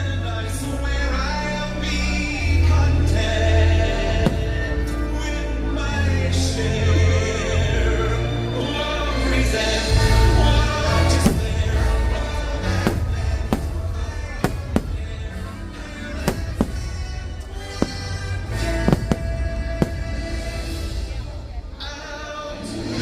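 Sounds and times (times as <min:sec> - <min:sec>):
loud music with heavy bass: 0:00.6 - 0:21.6
fireworks bangs: 0:04.2 - 0:05.0, 0:10.1 - 0:21.4.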